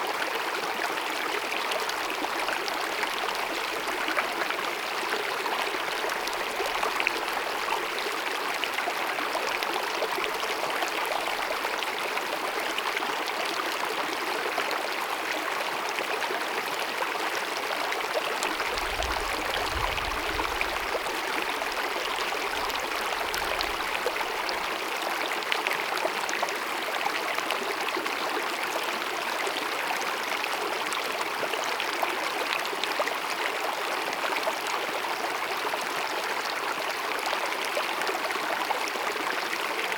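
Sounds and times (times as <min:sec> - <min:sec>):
stream babbling: 0:17.2 - 0:31.3.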